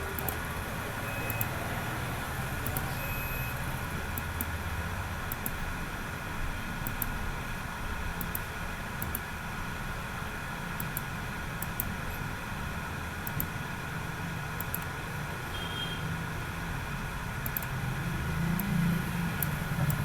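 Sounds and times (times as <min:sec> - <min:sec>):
faint high ticks: 0:17.4 - 0:17.7.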